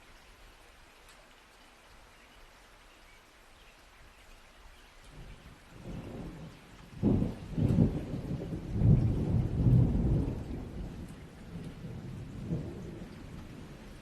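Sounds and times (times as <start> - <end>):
steady rain: 0.0 - 14.0
thunder rumbling: 5.8 - 14.0.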